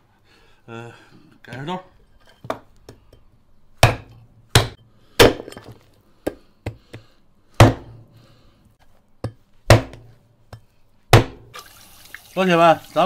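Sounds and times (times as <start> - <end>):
cleaver chopping bones: 3.8 - 5.6, 6.3 - 8.0, 9.7 - 10.1, 11.1 - 11.4.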